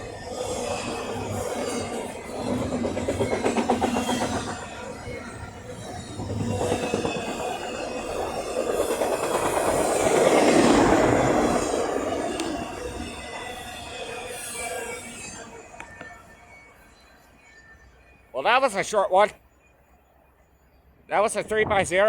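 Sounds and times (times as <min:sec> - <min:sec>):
train wheels clicking over rail joints: 0:00.9 - 0:13.7.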